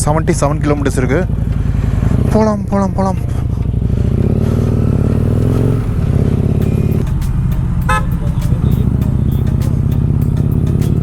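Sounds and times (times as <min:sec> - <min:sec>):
motorcycle engine running: 0:00.0 - 0:11.0
vehicle horn toot: 0:07.8 - 0:09.6.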